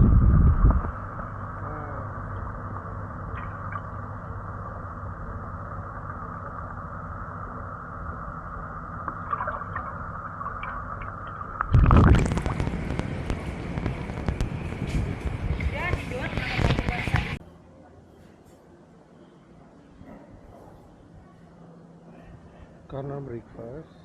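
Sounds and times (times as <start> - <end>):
muffled underwater rumble: 0.0 - 17.4
burst of water noise: 9.1 - 14.5.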